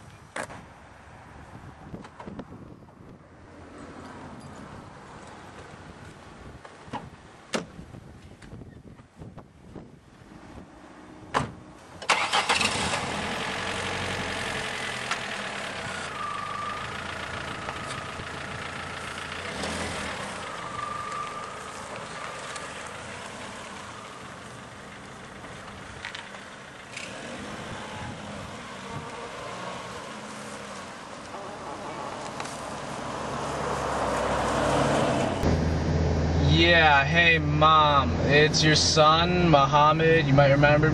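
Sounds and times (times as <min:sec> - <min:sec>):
car engine starting and running: 0:10.6 - 0:40.9.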